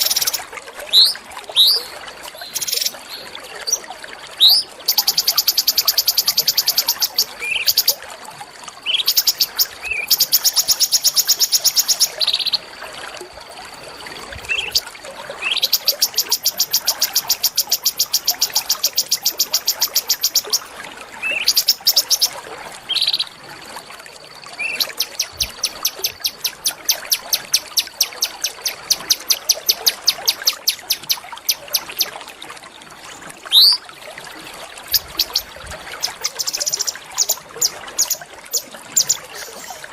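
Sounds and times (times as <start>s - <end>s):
songbird trilling: 0.0s - 1.8s, 2.4s - 2.9s, 4.4s - 7.9s, 15.4s - 22.3s, 24.6s - 32.1s, 33.5s - 33.8s, 34.9s - 39.8s
short rising bird whistles: 33.5s - 33.8s.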